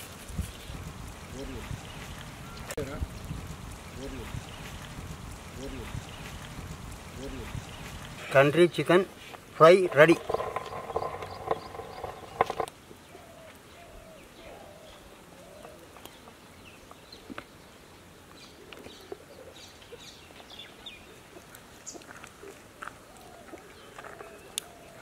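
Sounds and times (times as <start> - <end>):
outdoor background noise: 0.0 - 25.0
birds chirping faintly: 9.6 - 25.0.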